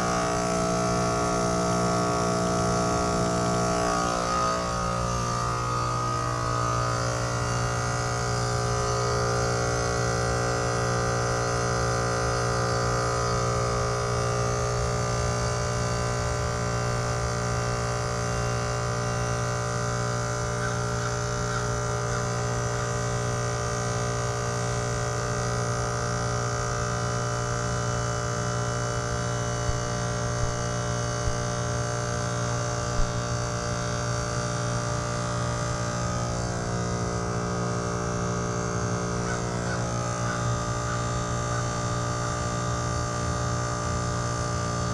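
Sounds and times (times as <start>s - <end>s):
electrical hum: 0.0s - 44.9s.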